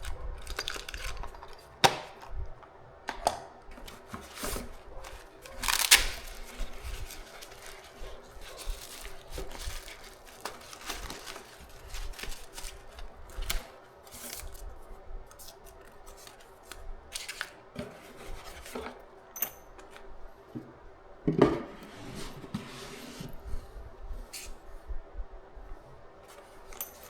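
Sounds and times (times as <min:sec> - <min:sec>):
packaging being opened: 0:00.0 - 0:14.7, 0:15.3 - 0:17.6.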